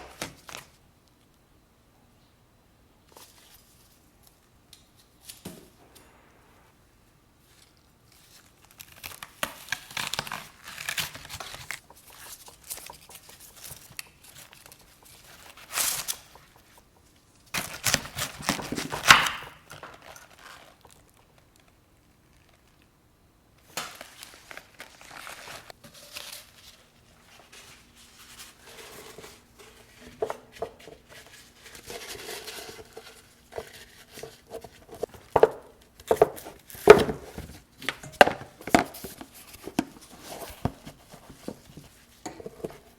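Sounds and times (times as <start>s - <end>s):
faint steady hum: 0.0s - 42.9s
wrapping material crinkling: 7.4s - 22.9s, 23.6s - 35.3s.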